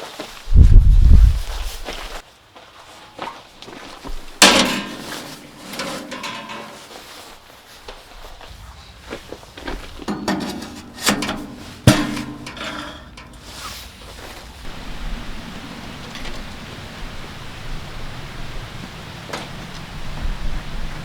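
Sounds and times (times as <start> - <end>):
objects knocking and clattering: 4.4 - 7.1, 10.0 - 14.8
steady rushing noise: 7.9 - 21.0.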